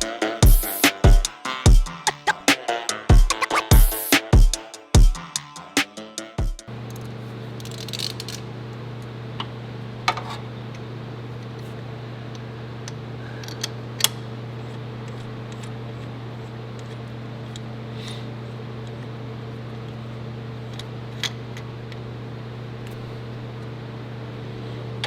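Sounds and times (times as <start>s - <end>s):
steady low hum: 8.2s - 25.0s.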